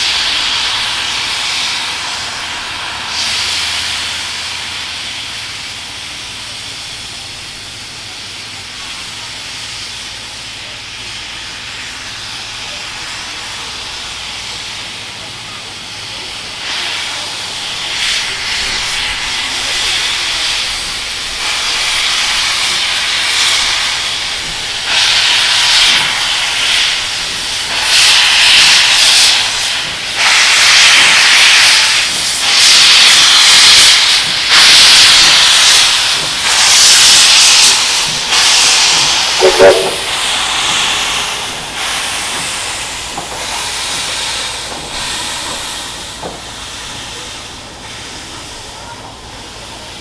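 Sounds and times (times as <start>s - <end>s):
steam locomotive hissing: 0.0s - 50.0s.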